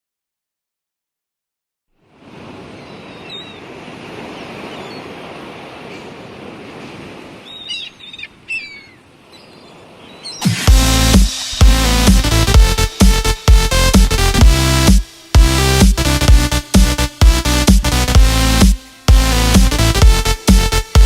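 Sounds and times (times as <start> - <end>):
sea waves washing ashore: 2.0 - 21.0
bird chirping: 2.7 - 3.7, 4.4 - 5.1, 7.4 - 10.6
electronic dance music: 10.4 - 21.0.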